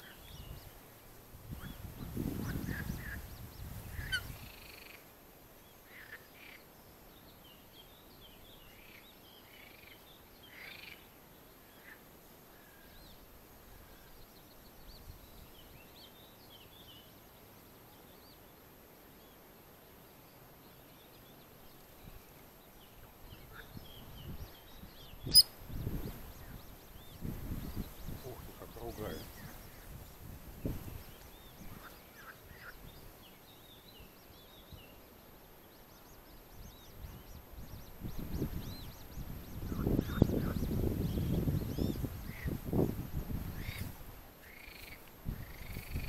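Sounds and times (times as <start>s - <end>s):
birds peeping and chirping: 21.7s - 35.0s, 35.8s - 46.0s.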